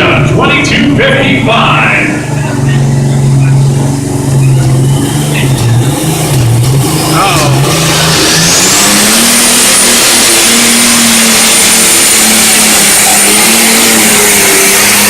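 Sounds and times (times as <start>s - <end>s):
diesel engine at full throttle: 0.0s - 15.0s
high whine: 0.0s - 15.0s.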